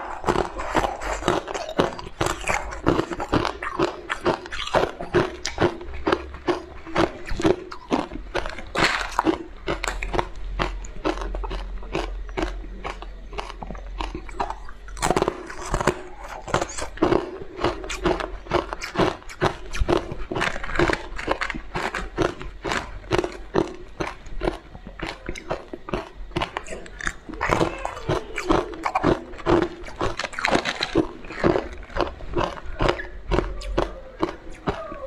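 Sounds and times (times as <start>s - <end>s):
person crunching ice: 0.0s - 14.2s.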